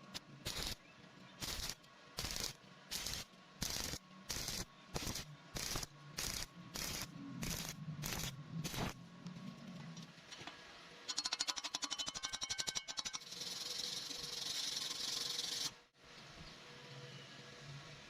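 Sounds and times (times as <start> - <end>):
welding arc bursts: 0.4 - 0.8, 1.4 - 9.0.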